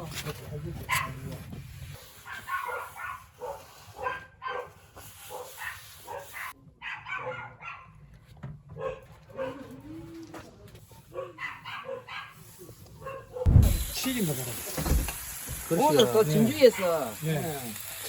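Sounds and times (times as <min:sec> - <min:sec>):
dog barking: 0:00.9 - 0:01.2, 0:02.2 - 0:08.0, 0:08.8 - 0:09.7, 0:11.1 - 0:12.4, 0:13.0 - 0:13.5.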